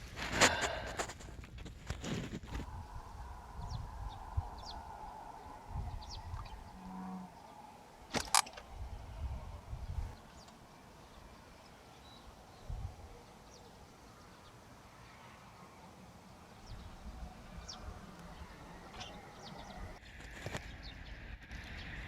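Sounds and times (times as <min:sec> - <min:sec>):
low rumbles: 0:00.0 - 0:10.5
bird chirps: 0:02.7 - 0:14.6, 0:16.5 - 0:22.0.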